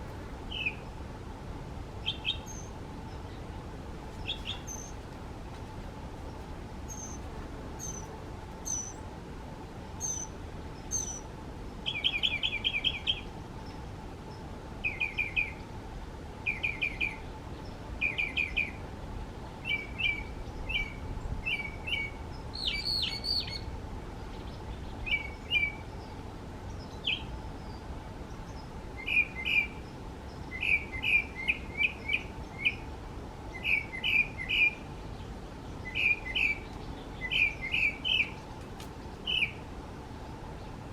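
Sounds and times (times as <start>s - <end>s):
mockingbird singing: 0.5s - 0.9s, 2.0s - 3.4s, 4.2s - 5.0s, 6.9s - 7.2s, 7.8s - 9.0s, 10.0s - 11.2s, 11.9s - 13.3s, 19.6s - 23.7s, 28.4s - 32.9s, 33.5s - 34.9s, 35.8s - 38.5s, 39.2s - 39.6s.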